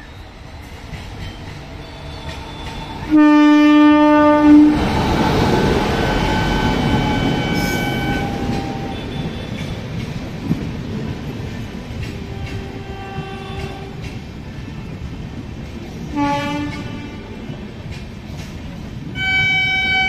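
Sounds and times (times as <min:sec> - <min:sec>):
train rumbling past: 0:00.0 - 0:20.0
locomotive horn blast: 0:02.7 - 0:04.9, 0:05.9 - 0:09.6, 0:12.3 - 0:14.0, 0:16.1 - 0:17.3, 0:19.2 - 0:20.0.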